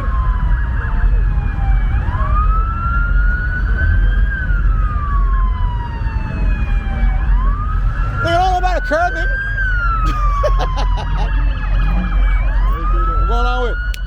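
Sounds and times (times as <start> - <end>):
engine and road noise: 0.0 - 14.0
siren wailing: 0.0 - 14.0.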